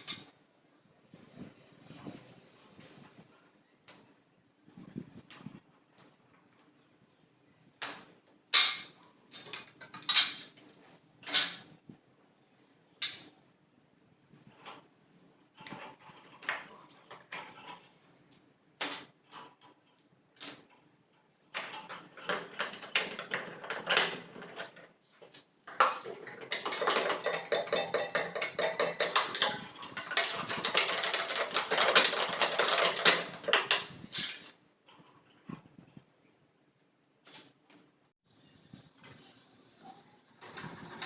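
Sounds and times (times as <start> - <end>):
rapid metal clinking and clattering: 25.6 - 35.1, 39.8 - 41.0.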